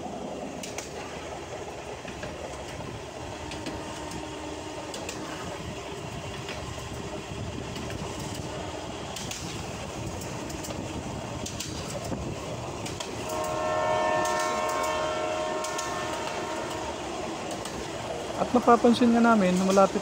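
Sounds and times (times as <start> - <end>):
train wheels clicking on rails: 0.0 - 20.0
train horn blast: 3.4 - 5.5, 13.1 - 17.9.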